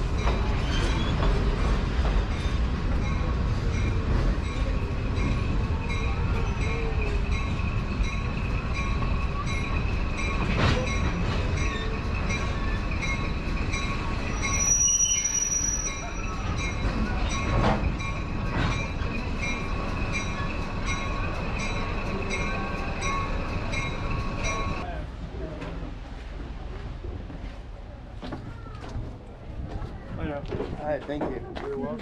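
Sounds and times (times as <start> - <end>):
train coach rumbling on track: 0.0 - 32.0
high-pitched squeal: 14.3 - 16.4.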